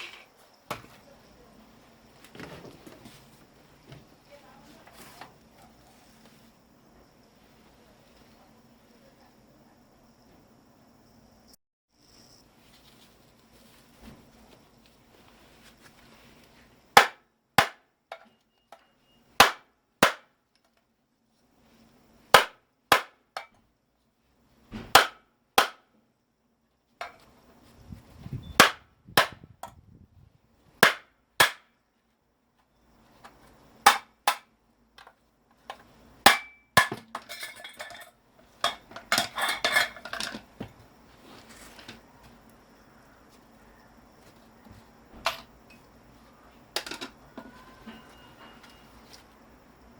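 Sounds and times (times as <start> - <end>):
loose metal pieces clattering: 36.8 - 40.5.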